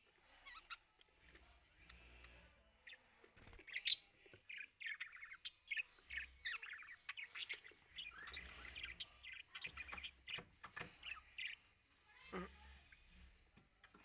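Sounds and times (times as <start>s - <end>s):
budgerigars chattering: 3.7s - 11.6s.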